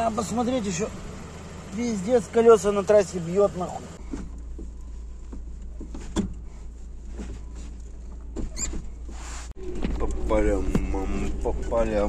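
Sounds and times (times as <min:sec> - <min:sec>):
engine humming: 0:00.0 - 0:12.0
short squeak: 0:08.4 - 0:09.8.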